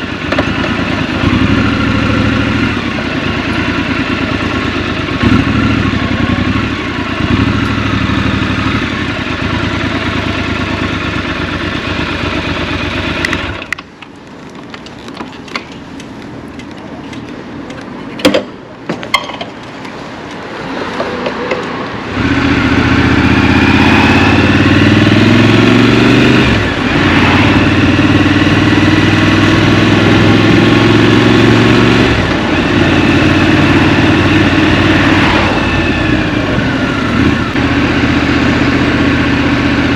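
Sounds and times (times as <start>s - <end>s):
motorcycle engine revving: 0.0s - 13.8s, 22.0s - 39.9s.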